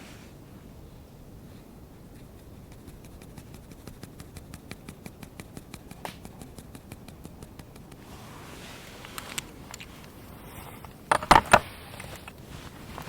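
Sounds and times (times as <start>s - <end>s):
rapid light clicks: 2.1s - 8.1s.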